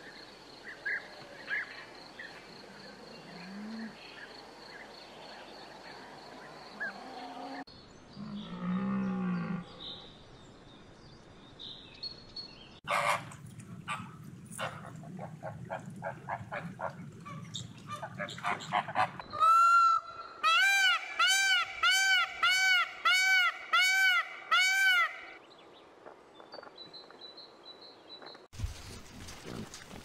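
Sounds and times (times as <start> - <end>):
flamingos honking: 12.9 - 25.4
peacock calling: 12.9 - 25.4.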